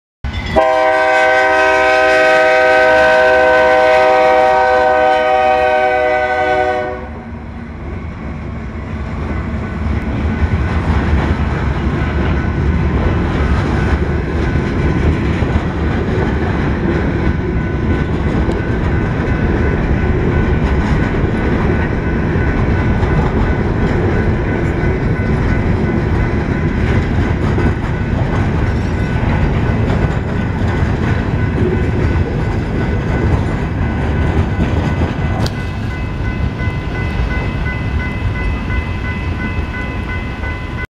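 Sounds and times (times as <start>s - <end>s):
locomotive air horn blast: 0.6s - 7.5s
freight car wheels rumbling: 8.9s - 40.2s.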